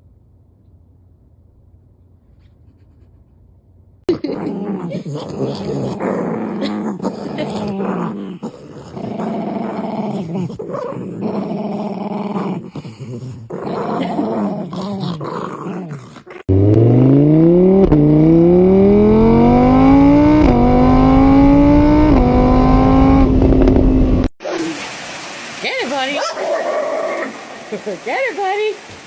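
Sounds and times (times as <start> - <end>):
dog growling: 4.1 - 16.5, 26.2 - 28.0
car engine accelerating: 16.5 - 24.3.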